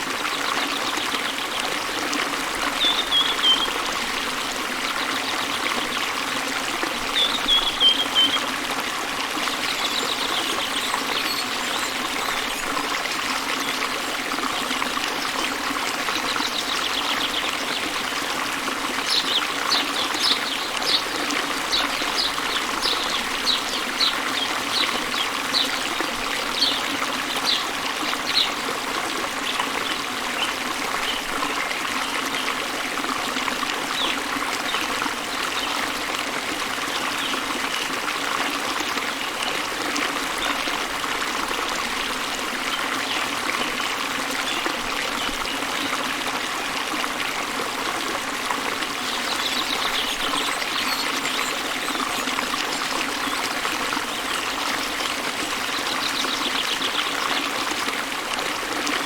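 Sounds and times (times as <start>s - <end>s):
waterfall rushing: 15.4s - 31.5s.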